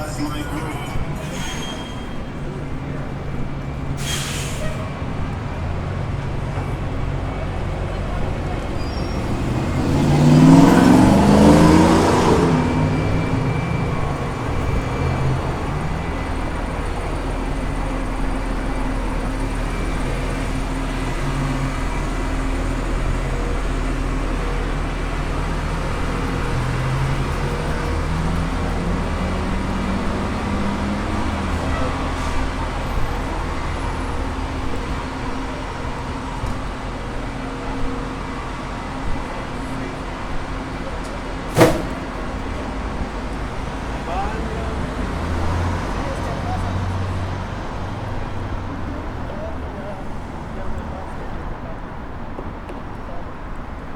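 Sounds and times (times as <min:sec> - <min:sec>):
steady engine hum: 0:00.0 - 0:01.3
vehicle accelerating: 0:04.9 - 0:37.4
engine rising in pitch: 0:09.0 - 0:16.8.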